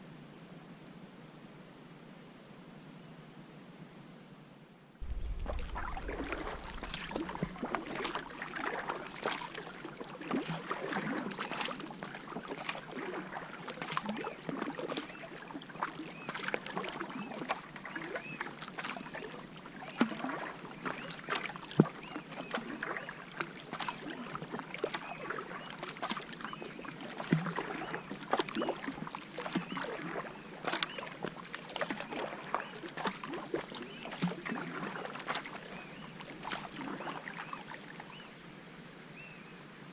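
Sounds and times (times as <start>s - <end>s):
water dripping: 5.0s - 23.0s, 23.6s - 35.6s
paddle splashing water: 5.0s - 38.3s.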